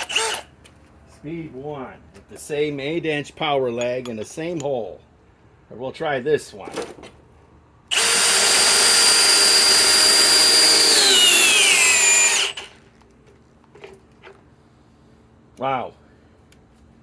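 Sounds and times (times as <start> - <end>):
cordless drill whining: 0.0 - 0.5, 7.9 - 12.8.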